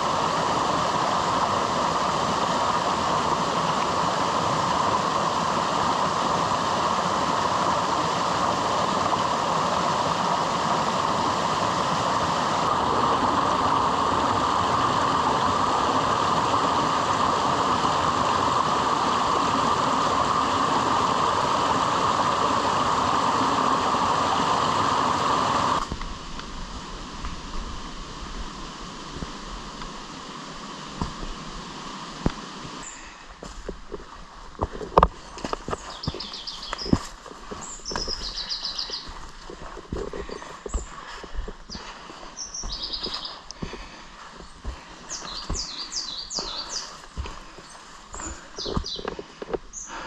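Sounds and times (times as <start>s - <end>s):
rain: 0.0s - 33.6s.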